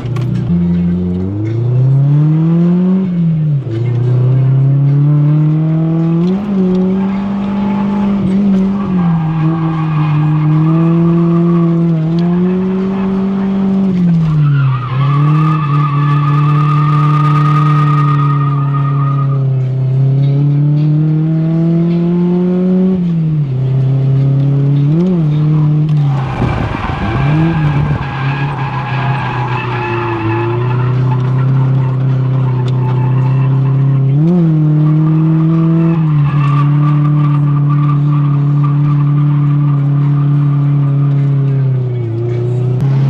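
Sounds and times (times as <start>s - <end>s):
car engine revving: 0.0s - 43.0s
tyre squeal: 6.8s - 19.5s, 25.5s - 41.4s.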